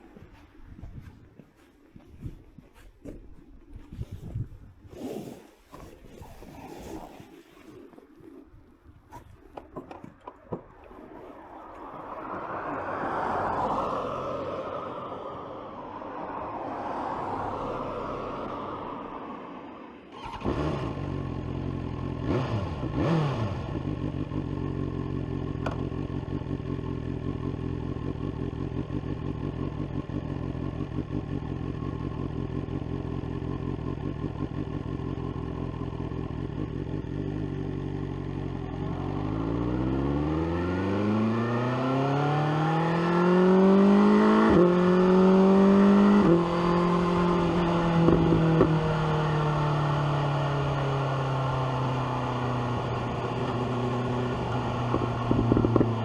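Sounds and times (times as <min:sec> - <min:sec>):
motorcycle engine starting and idling: 0:20.1 - 0:41.5, 0:42.6 - 0:56.0
motorcycle pulling away: 0:20.1 - 0:56.0
motorcycle engine blipped: 0:21.5 - 0:56.0.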